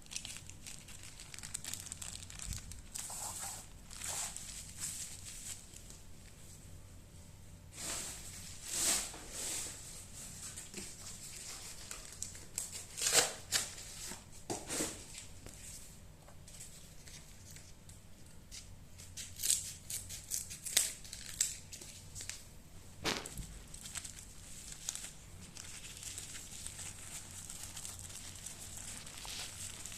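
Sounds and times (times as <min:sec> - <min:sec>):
packing material crinkling: 0:00.0 - 0:06.0, 0:10.4 - 0:14.2, 0:18.6 - 0:22.4, 0:23.0 - 0:29.9.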